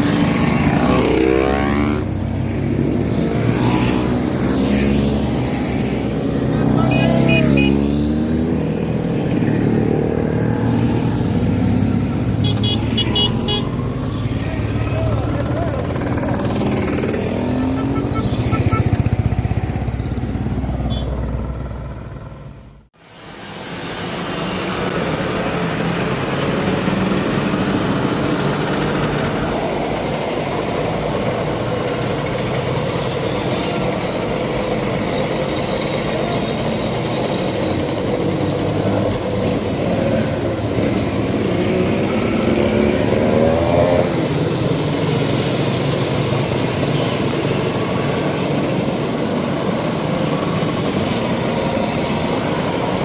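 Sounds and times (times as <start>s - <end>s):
motorcycle engine running: 0.0s - 22.8s
scooter engines droning: 0.0s - 53.0s
horn short beeps: 6.8s - 7.9s, 17.6s - 19.1s, 20.9s - 21.2s.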